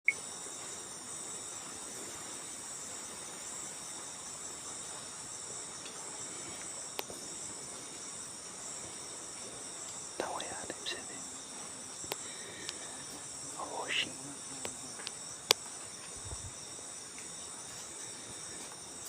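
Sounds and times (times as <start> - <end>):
insects trilling: 0.1 - 19.0.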